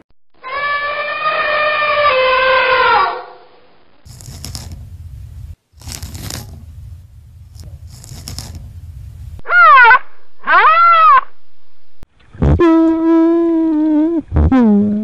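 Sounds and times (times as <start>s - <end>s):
animal calls rising and falling: 0.4s - 3.4s, 9.4s - 11.3s
low rumble: 3.5s - 14.2s.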